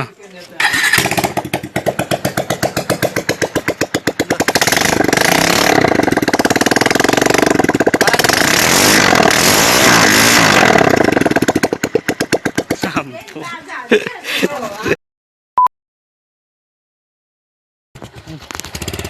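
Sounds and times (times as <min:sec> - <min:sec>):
motorcycle engine idling and revving: 0:00.0 - 0:14.1, 0:18.0 - 0:19.0.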